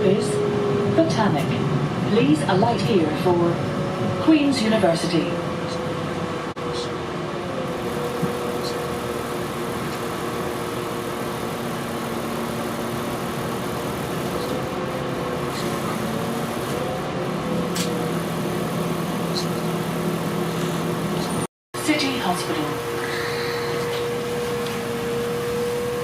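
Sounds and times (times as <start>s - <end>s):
train engine drone: 0.0s - 26.0s.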